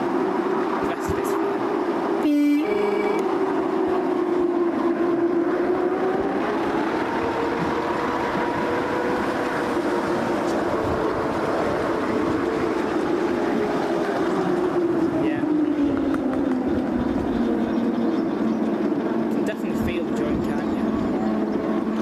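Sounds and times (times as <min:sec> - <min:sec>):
train coach rumbling on track: 0:00.0 - 0:22.0
faint high tone: 0:02.2 - 0:03.3.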